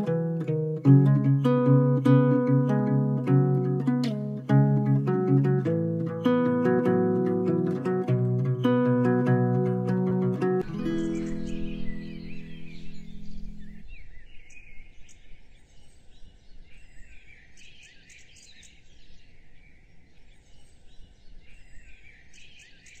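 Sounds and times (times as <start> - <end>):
guitar chord: 0.0 - 13.8
birds chirping: 0.0 - 23.0.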